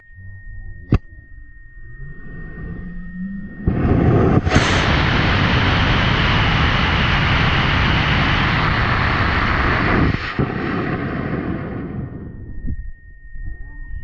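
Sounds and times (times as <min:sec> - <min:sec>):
rocket motor roaring: 0:02.0 - 0:12.4.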